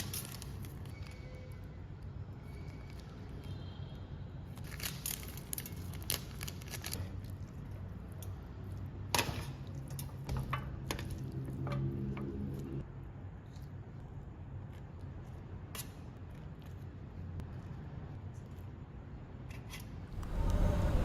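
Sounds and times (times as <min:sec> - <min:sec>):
steady low hum: 0:20.1 - 0:21.0.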